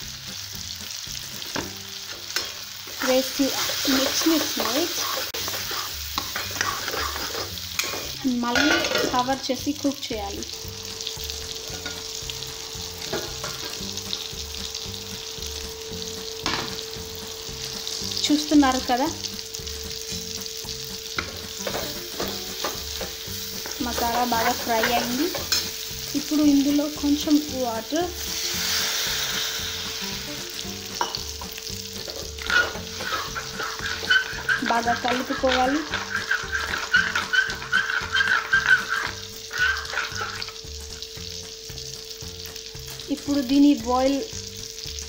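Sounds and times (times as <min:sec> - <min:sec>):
curry sizzling in a pan: 0:00.0 - 0:45.0
metal spatula scraping pan: 0:02.0 - 0:09.3, 0:21.2 - 0:25.9, 0:32.0 - 0:40.6
metal lid clank: 0:07.8 - 0:09.2.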